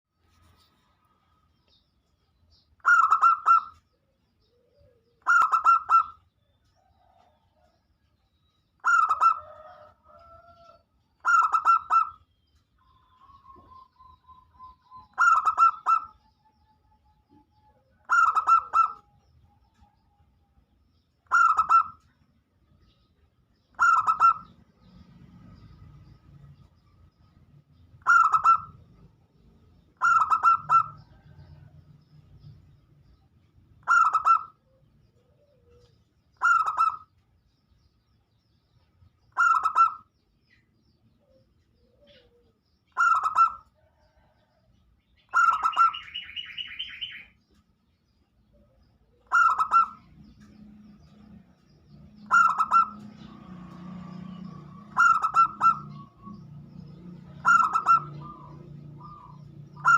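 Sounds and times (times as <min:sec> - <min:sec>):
doves cooing: 0:02.8 - 0:07.6, 0:08.8 - 0:12.2, 0:13.2 - 0:16.3, 0:17.9 - 0:19.1, 0:21.2 - 0:22.1, 0:23.7 - 0:24.6, 0:28.0 - 0:28.8, 0:29.9 - 0:31.7, 0:33.8 - 0:37.1, 0:39.3 - 0:40.1, 0:41.6 - 0:44.6, 0:45.3 - 0:47.3, 0:48.6 - 0:51.4, 0:52.0 - 0:59.9.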